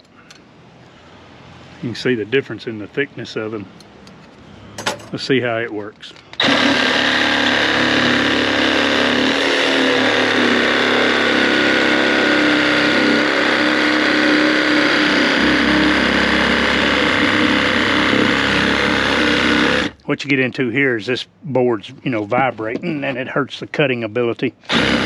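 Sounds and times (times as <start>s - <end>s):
reciprocating saw cutting wood: 6.4s - 20.0s, 24.7s - 25.0s
wooden board vibrating: 6.4s - 20.0s.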